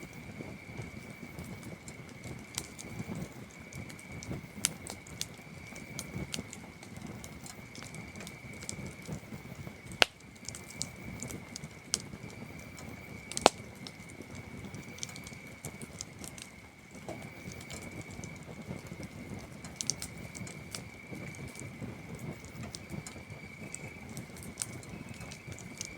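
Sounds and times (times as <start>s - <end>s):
campfire wood crackling: 0.0s - 25.9s
crickets chirping: 0.0s - 25.9s
sharp loud wood snaps: 10.0s - 10.9s, 13.3s - 13.7s.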